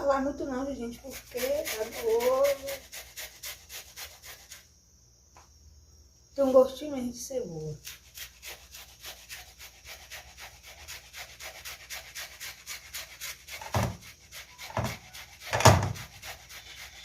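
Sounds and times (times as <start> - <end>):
onion grated on metal grater: 0.8 - 4.6, 7.6 - 17.0.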